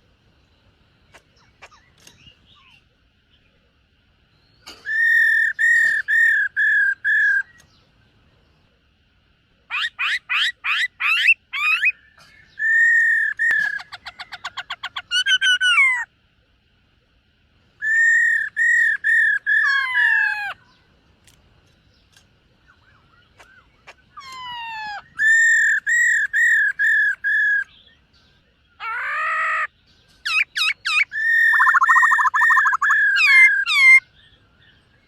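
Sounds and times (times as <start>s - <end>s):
bird singing whistled phrases: 17.8s - 20.6s, 22.9s - 28.0s, 28.8s - 34.1s.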